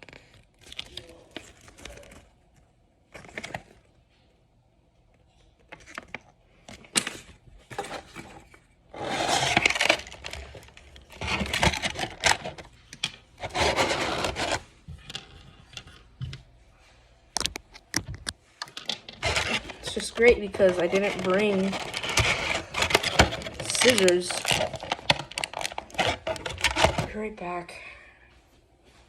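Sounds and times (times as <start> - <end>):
packaging scraping and rubbing: 7.1 - 16.0, 18.2 - 27.2.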